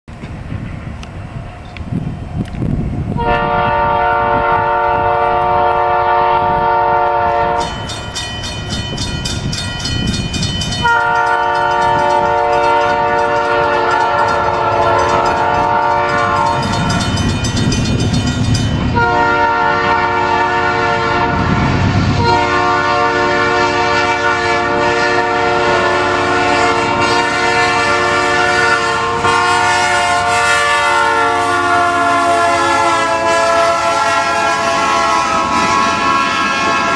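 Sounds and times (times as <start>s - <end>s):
passing train rumble: 0.1s - 36.9s
train air horn blasts: 3.2s - 7.8s, 10.8s - 17.1s, 18.9s - 36.9s.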